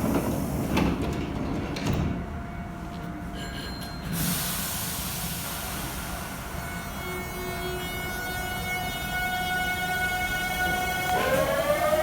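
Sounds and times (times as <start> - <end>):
electric train rumbling: 4.2 - 12.0.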